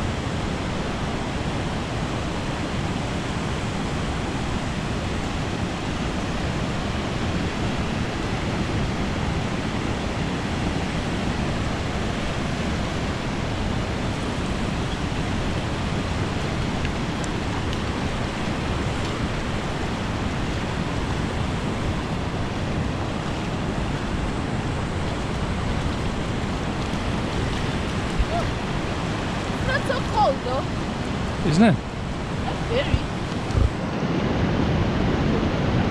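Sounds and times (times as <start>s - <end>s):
waves rushing: 0.0s - 35.9s
wind: 0.0s - 35.9s.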